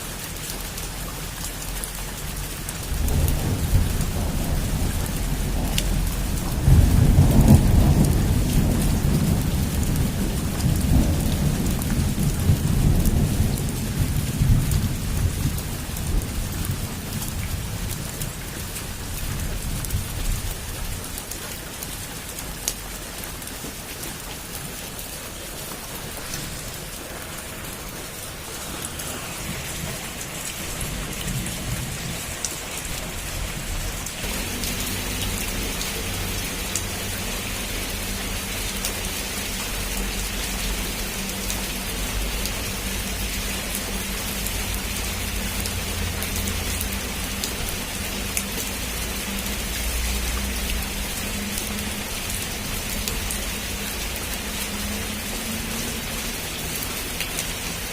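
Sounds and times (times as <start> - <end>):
heavy rain on a roof: 0.0 - 57.9
thunder rolling: 2.8 - 17.9, 26.0 - 37.6.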